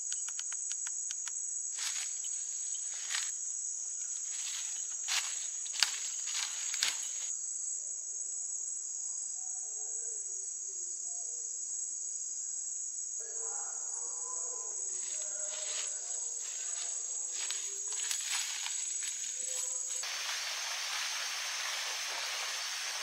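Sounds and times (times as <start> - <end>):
sharp clicks: 0.0 - 1.4
night insects chorus: 0.0 - 23.0.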